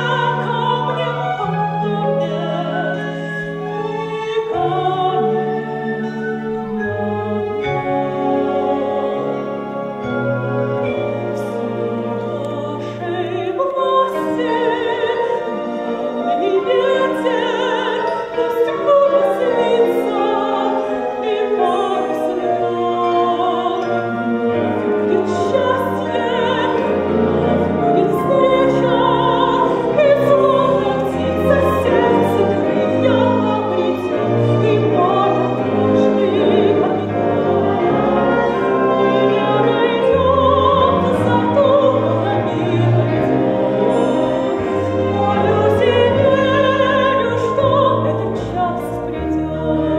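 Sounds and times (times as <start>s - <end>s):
woman singing operatically: 0.0s - 3.2s, 12.1s - 15.8s, 25.0s - 49.9s
orchestral accompaniment: 0.0s - 49.9s.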